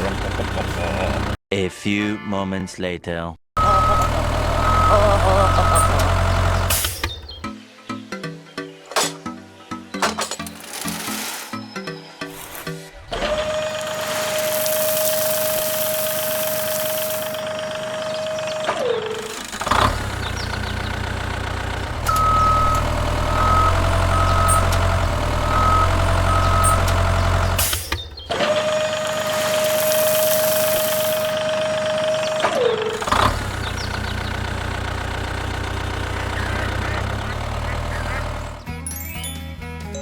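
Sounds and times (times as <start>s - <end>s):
low tractor engine running: 0.0s - 1.4s, 3.6s - 7.4s, 12.4s - 38.7s
reversing beeper: 3.6s - 6.5s, 22.0s - 27.7s.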